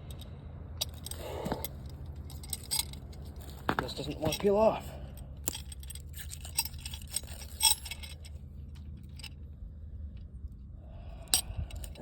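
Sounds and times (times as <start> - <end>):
metallic clicks and clinks: 0.0 - 9.4
low rumble: 0.0 - 12.0.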